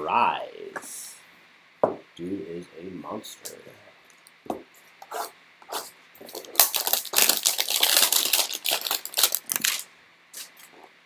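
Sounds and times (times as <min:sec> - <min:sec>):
packaging crinkling and tearing: 0:06.3 - 0:10.7.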